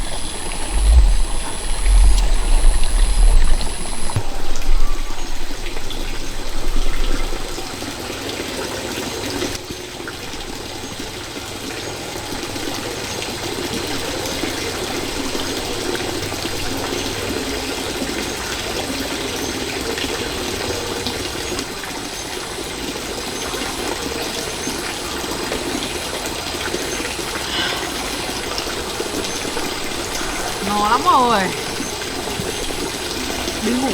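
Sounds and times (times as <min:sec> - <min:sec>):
low rumble: 0:00.0 - 0:07.6
stream flowing: 0:00.0 - 0:33.9.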